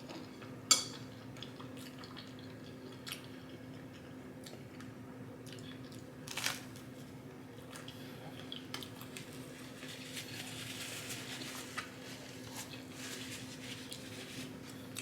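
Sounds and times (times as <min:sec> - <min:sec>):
faint steady hum: 0:00.0 - 0:15.0
chewing and mouth sounds: 0:01.3 - 0:06.1.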